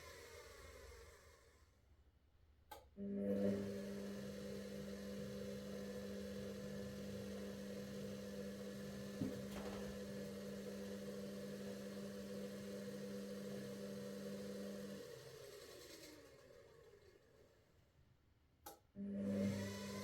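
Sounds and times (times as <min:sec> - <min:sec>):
click: 0:02.7 - 0:02.9, 0:18.6 - 0:18.8
washing machine motor hum: 0:03.2 - 0:15.4.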